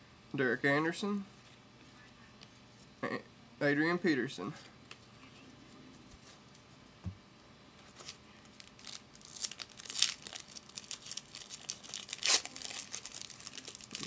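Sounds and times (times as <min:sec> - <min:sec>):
wrapper tearing and crinkling: 0:08.0 - 0:14.0.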